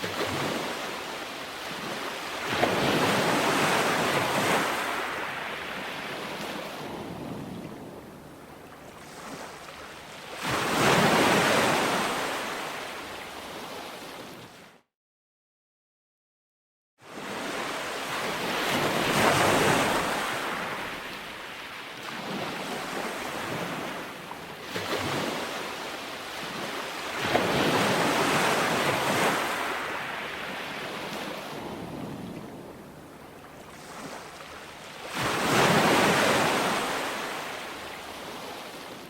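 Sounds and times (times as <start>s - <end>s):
waves breaking on shore: 0.0s - 14.8s, 17.1s - 39.0s.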